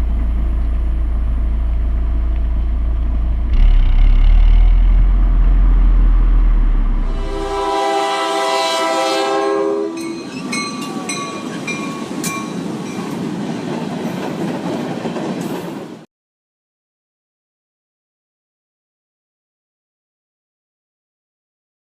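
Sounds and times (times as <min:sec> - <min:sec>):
train horn blowing: 0:07.0 - 0:10.3
train clattering past: 0:07.0 - 0:16.1.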